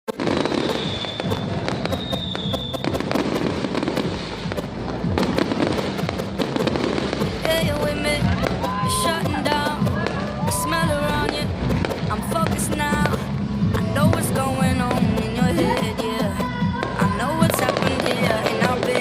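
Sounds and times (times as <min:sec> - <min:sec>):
fireworks bangs and crackling: 0:00.1 - 0:19.0
thin high whistle: 0:00.2 - 0:03.0
music with singing: 0:01.4 - 0:19.0.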